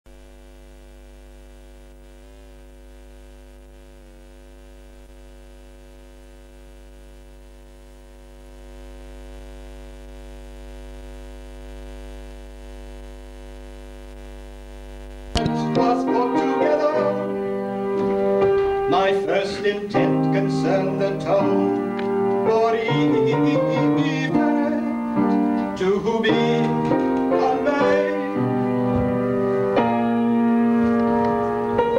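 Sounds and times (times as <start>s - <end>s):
electrical mains hum: 0.1s - 30.0s
keyboard music: 15.4s - 31.9s.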